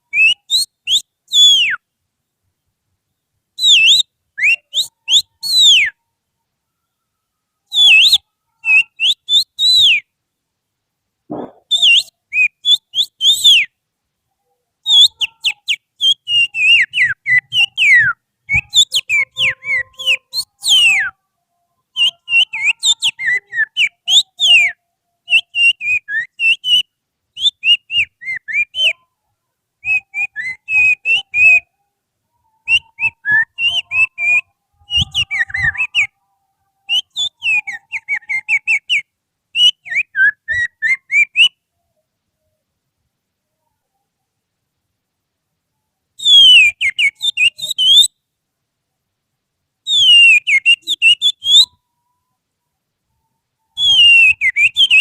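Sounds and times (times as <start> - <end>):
person whistling birdsong: 0.1 - 1.8, 3.6 - 6.0, 7.7 - 10.1, 11.6 - 13.7, 14.9 - 21.1, 29.8 - 31.7, 32.6 - 36.2, 46.2 - 48.1, 49.9 - 51.8, 53.8 - 55.0.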